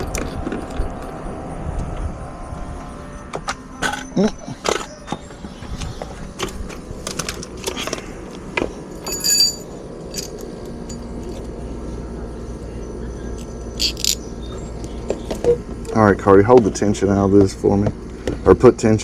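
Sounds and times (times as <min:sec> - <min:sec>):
steady low hum: 0:00.0 - 0:19.0
ringing metallic clink: 0:09.0 - 0:11.4, 0:13.4 - 0:14.3
metal hardware clicking and knocking: 0:13.8 - 0:14.2.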